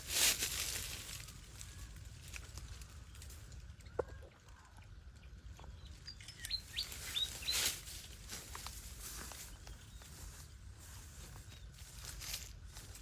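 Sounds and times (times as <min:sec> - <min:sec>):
small bird chirping: 0:05.7 - 0:08.0.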